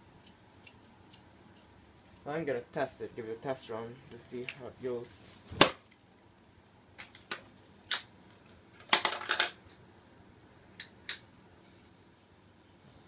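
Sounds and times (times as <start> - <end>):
plastic parts clicking and clacking: 8.8 - 9.6.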